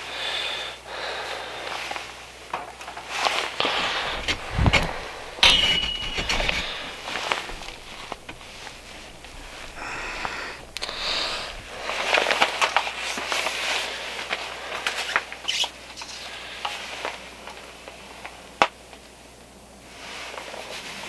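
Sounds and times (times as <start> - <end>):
rustling handling noise: 3.3 - 12.7.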